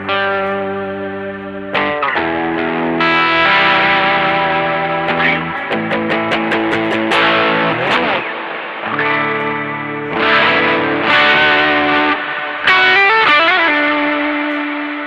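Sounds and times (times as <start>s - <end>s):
overdriven electric guitar chords: 0.0s - 15.0s.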